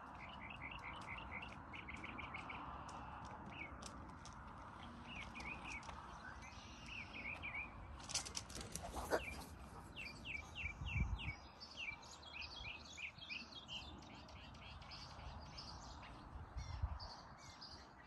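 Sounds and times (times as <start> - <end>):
small birds chirping: 0.0 - 18.0
brief rustle: 8.0 - 9.6.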